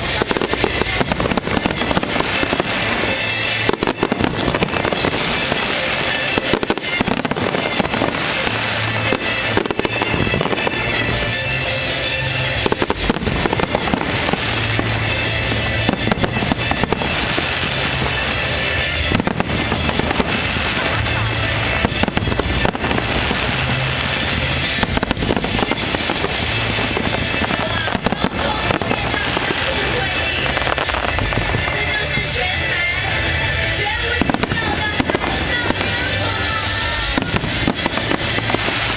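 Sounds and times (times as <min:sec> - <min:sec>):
fireworks bangs and crackling: 0:00.0 - 0:38.9
loud music with steady bass: 0:00.0 - 0:38.9.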